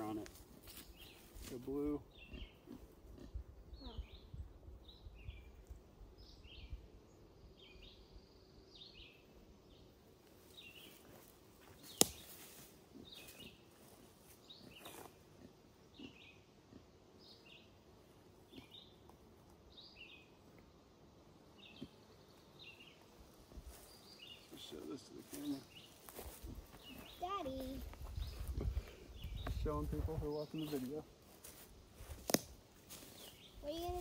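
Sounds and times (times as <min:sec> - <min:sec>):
bird chirping: 0:00.0 - 0:02.8, 0:23.7 - 0:31.6.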